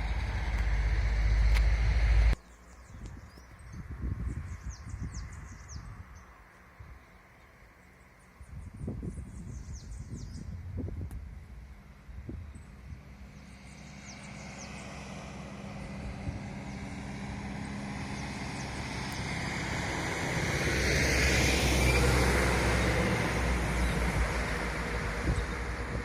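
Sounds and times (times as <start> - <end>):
vehicle passing: 0.0 - 2.4, 12.5 - 26.0.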